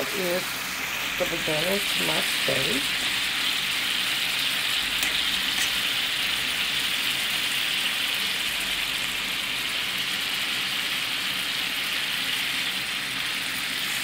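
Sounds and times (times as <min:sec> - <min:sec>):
steak sizzling in a frying pan: 0:00.0 - 0:14.0.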